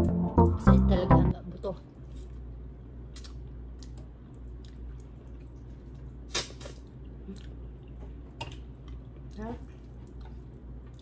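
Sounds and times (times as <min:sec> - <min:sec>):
low steady hum: 0:00.0 - 0:11.0
wet mouth smacks and clicks: 0:03.2 - 0:04.8.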